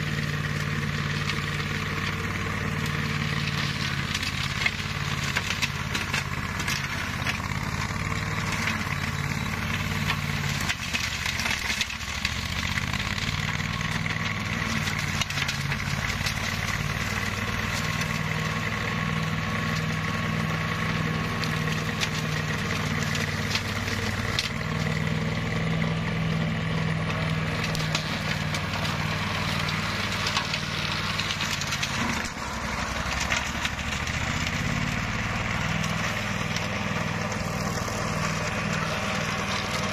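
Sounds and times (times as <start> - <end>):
grass cutter engine running: 0.0 - 39.9.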